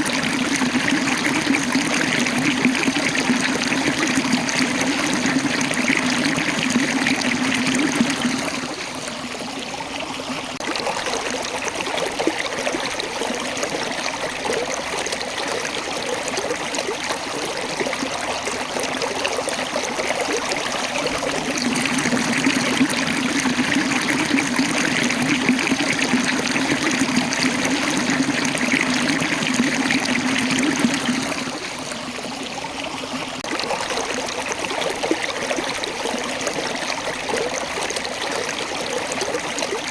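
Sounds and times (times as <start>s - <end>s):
water rushing over rocks: 18.9s - 32.3s.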